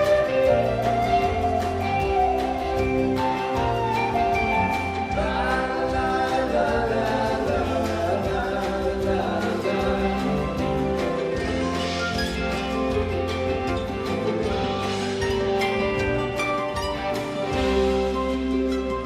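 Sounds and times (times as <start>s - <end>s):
voices singing in harmony: 0.0s - 12.0s
acoustic instruments: 0.0s - 19.0s
steady bass: 0.0s - 19.0s.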